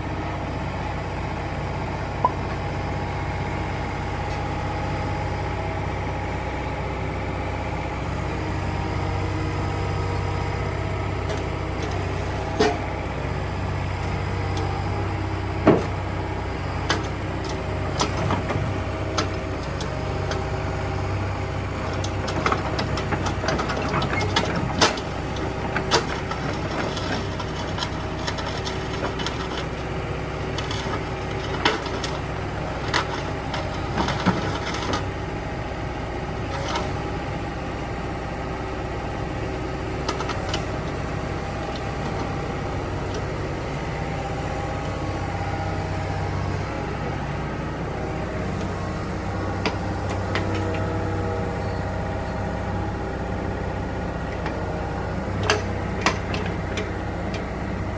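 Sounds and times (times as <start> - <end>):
diesel engine running: 0.0 - 57.9
metallic clanks and knocks: 21.9 - 35.0, 55.3 - 57.5.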